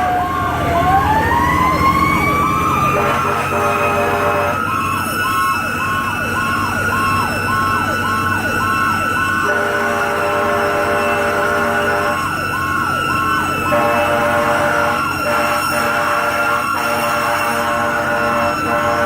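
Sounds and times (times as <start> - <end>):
electronic siren yelping: 0.0 - 19.0
mechanical siren whine: 0.0 - 19.0
air horn blasting: 2.8 - 4.8, 9.4 - 12.3, 13.7 - 19.0.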